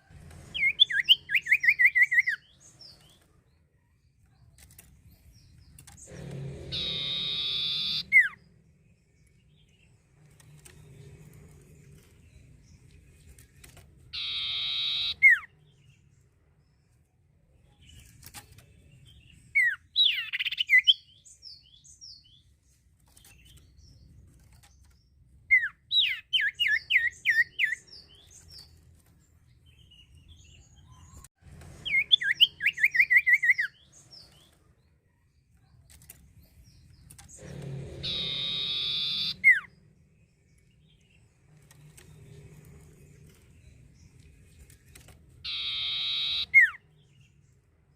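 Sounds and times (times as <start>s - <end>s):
bird whistling sharp notes: 6.1s - 8.4s, 14.2s - 15.5s, 38.0s - 39.7s, 45.4s - 46.8s.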